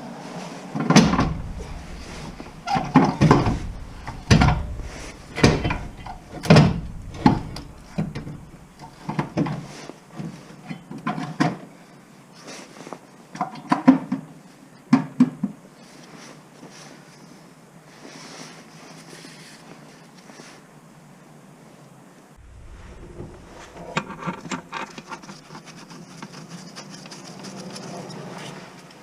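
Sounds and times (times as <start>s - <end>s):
tools and parts knocking: 1.0s - 9.5s.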